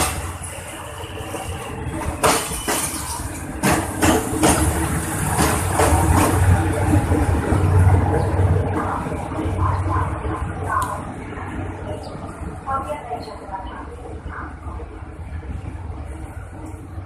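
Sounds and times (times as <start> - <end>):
train wheels clacking over rail joints: 0.0 - 0.5, 1.4 - 7.7
diesel locomotive engine rumble: 0.0 - 17.0.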